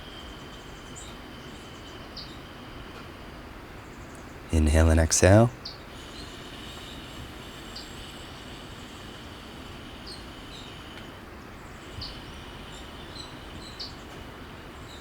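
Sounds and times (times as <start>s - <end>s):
background hiss: 4.5s - 15.0s.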